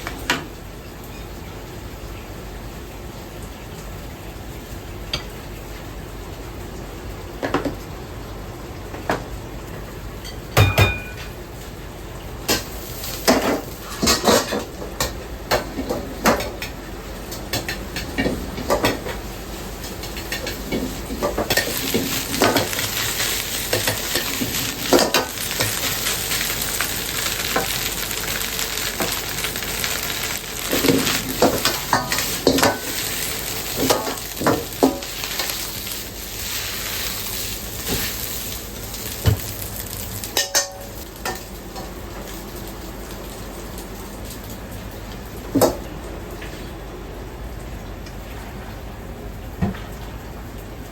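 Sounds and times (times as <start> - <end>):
food sizzling in a hot pan: 12.5 - 15.2, 18.6 - 44.6.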